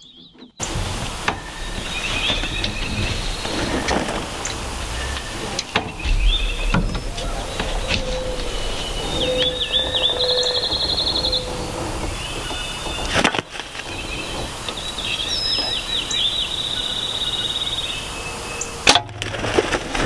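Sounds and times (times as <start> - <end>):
songbird singing with trill: 0.6 - 18.8.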